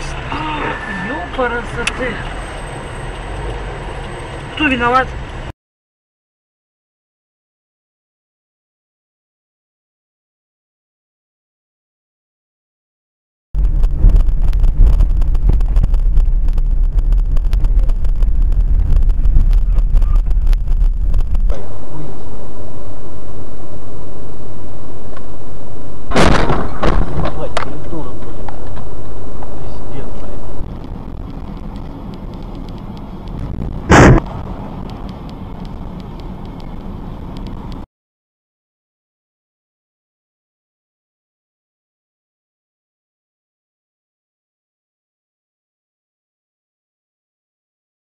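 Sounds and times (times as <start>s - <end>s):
moving car rumble: 0.0s - 5.6s, 13.6s - 37.9s
small crackles and knocks: 13.6s - 21.6s, 30.6s - 37.8s
wind buffeting microphone: 13.6s - 24.0s, 26.1s - 37.8s
loud collision bang: 26.1s - 29.0s, 33.9s - 34.3s.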